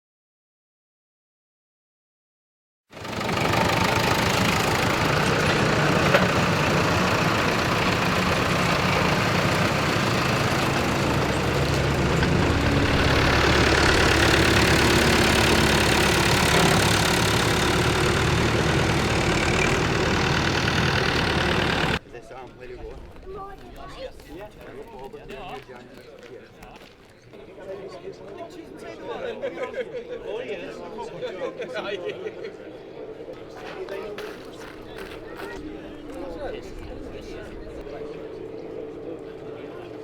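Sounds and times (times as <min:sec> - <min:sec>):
tractor engines running: 0:03.0 - 0:22.0, 0:32.5 - 0:40.0.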